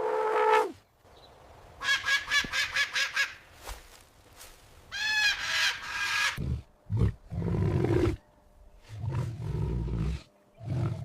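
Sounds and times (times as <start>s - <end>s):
big cat roaring and growling: 8.9s - 11.0s.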